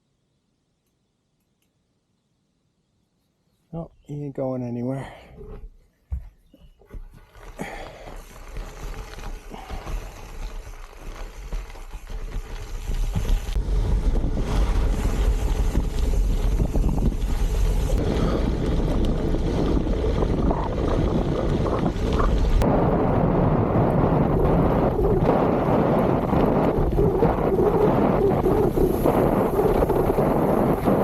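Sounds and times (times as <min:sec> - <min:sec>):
wind buffeting microphone: 0:11.4 - 0:31.0.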